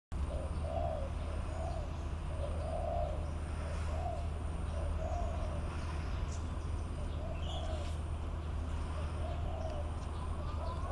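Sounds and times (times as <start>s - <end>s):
bird hooting coos: 0.2s - 5.7s, 6.9s - 8.0s, 8.9s - 10.9s.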